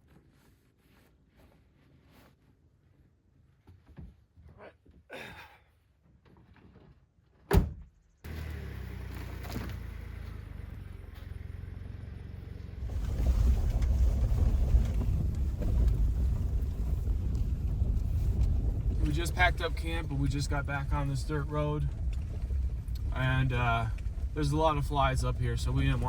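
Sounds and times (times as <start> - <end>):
truck driving on dirt road: 8.1 - 26.0.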